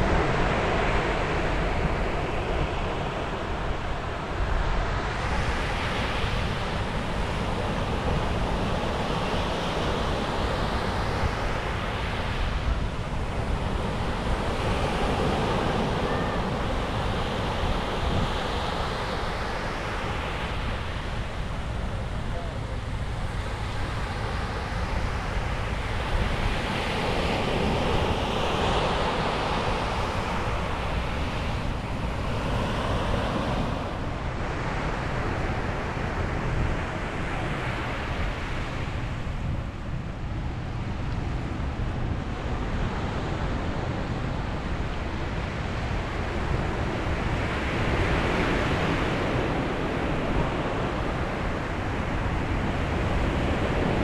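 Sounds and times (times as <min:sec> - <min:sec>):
wind rumble on microphone: 0:00.0 - 0:54.0
ocean waves breaking: 0:04.6 - 0:36.2.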